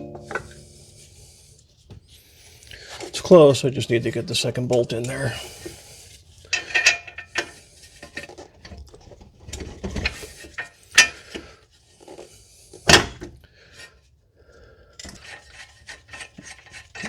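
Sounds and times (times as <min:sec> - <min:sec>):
sharp knocks: 0:00.0 - 0:01.1
metal tools clinking and scraping: 0:06.5 - 0:08.5.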